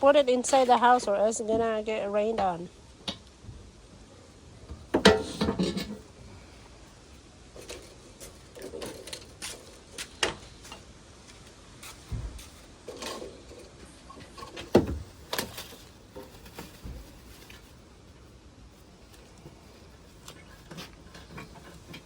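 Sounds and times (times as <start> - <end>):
wooden crate knocks and scrapes: 14.2 - 17.3.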